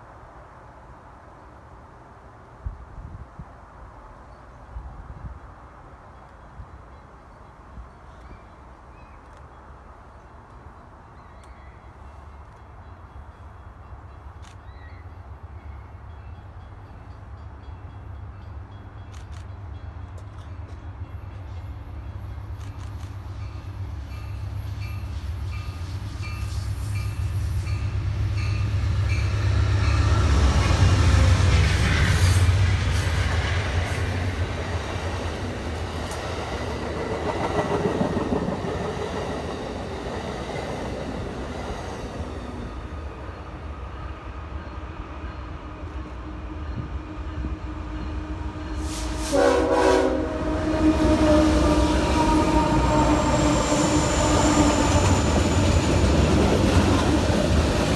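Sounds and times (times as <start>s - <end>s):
train rumbling past: 0.0s - 57.9s
wheels clicking on rail joints: 29.7s - 43.6s
multi-tone train horn: 46.0s - 55.4s.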